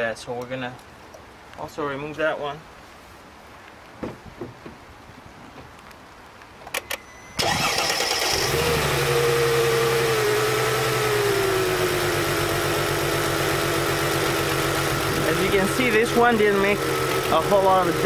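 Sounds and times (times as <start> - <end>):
car engine running rough: 7.4 - 18.0.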